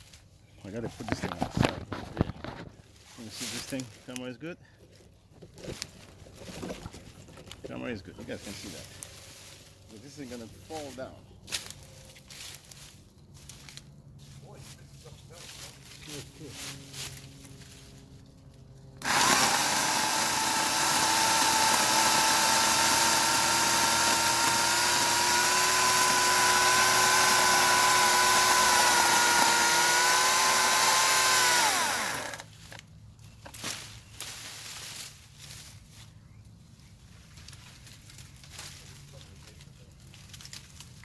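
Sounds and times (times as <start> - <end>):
electric chainsaw whining: 18.9 - 32.6.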